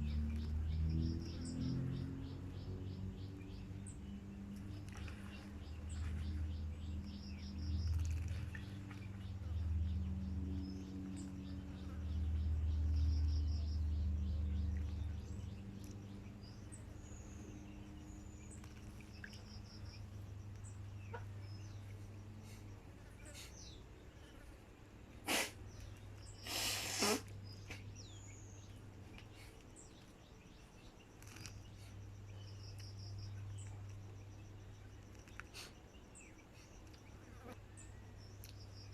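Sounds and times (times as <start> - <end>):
steady low hum: 0.0 - 26.5
songbird chirping: 0.0 - 38.9
brief noisy bursts: 26.4 - 27.8.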